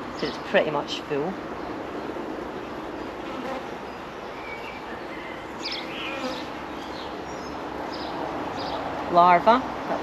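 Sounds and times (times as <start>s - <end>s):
honeybees buzzing: 3.0s - 3.9s, 5.6s - 7.2s.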